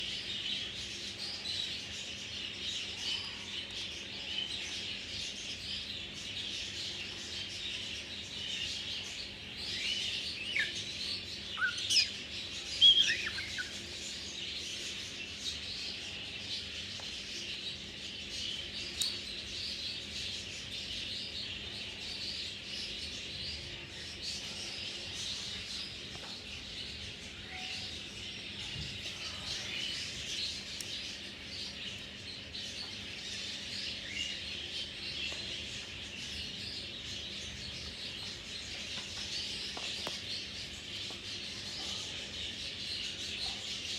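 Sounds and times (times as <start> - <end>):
parrots chirping: 12.8 - 13.8.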